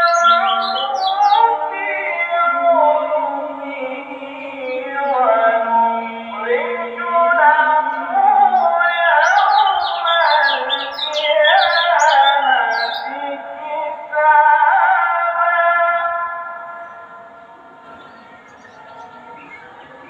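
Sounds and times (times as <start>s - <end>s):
bird twittering song: 0.0s - 1.5s, 8.5s - 13.2s, 17.8s - 20.0s
music with sung-like melody: 0.0s - 20.0s.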